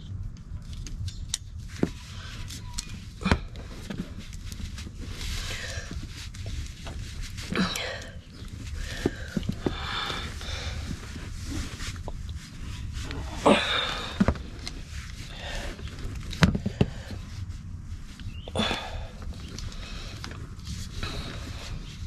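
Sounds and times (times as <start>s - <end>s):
person breathing hard: 5.0s - 6.6s, 7.4s - 17.6s, 18.3s - 22.0s.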